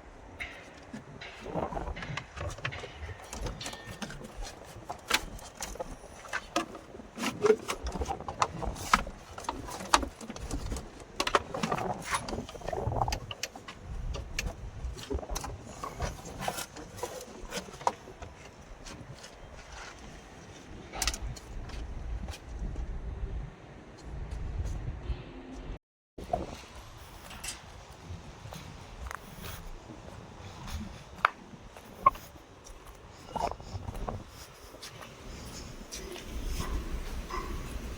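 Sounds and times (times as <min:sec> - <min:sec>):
hand tools clicking and clattering: 0:00.4 - 0:21.8.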